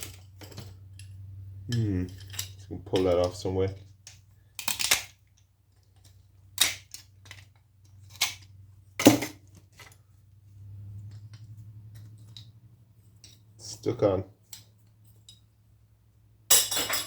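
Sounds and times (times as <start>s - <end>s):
low steady hum: 0.0s - 17.0s
tool clicking and snapping: 4.1s - 5.2s, 6.0s - 7.4s.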